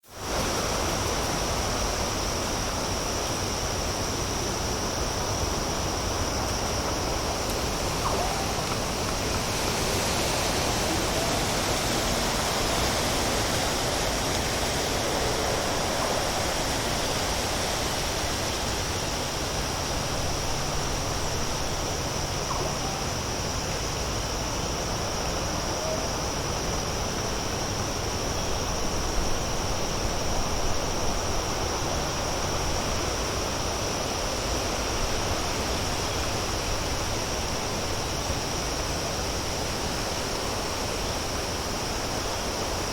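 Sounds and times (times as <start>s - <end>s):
outdoor hiss: 0.0s - 42.9s.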